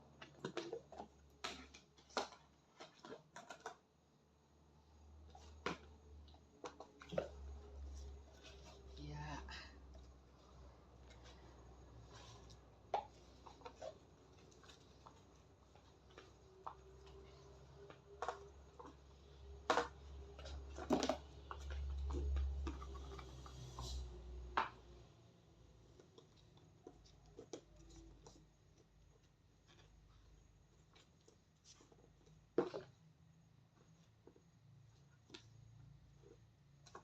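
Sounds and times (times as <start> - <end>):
vegetables and containers clicking: 10.6 - 24.9.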